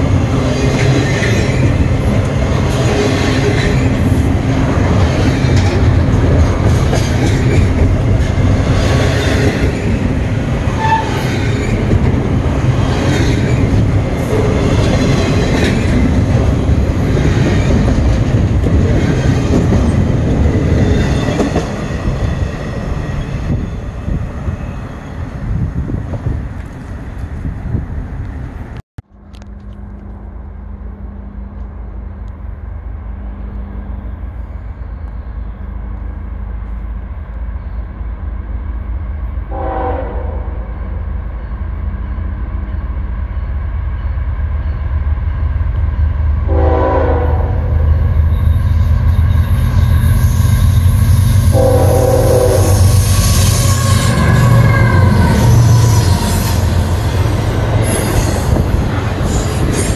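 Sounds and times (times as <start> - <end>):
train wheels on rails: 0.0 - 40.2, 40.8 - 59.9
diesel locomotive engine rumble: 0.0 - 59.9
locomotive horn blasts: 10.8 - 11.2, 39.5 - 40.7, 46.5 - 47.8, 51.5 - 55.2.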